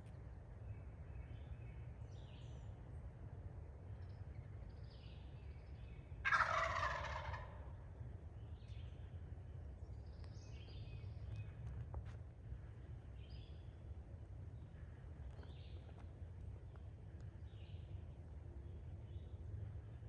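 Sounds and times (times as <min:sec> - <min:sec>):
turkey gobbling: 0:06.2 - 0:07.8.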